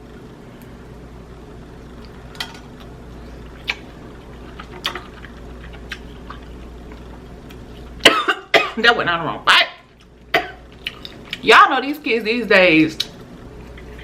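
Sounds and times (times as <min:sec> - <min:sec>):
eating crab legs: 0:02.0 - 0:08.0.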